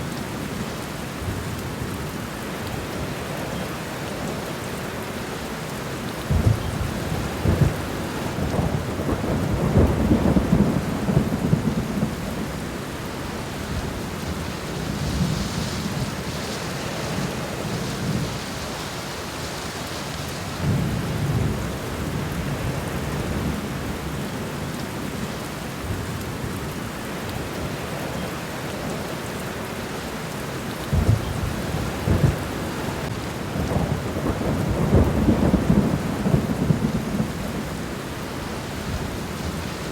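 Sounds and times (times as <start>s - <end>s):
steady rain on ground: 0.0s - 39.9s
low rolling thunder: 6.2s - 18.8s, 20.4s - 24.4s, 30.9s - 39.9s.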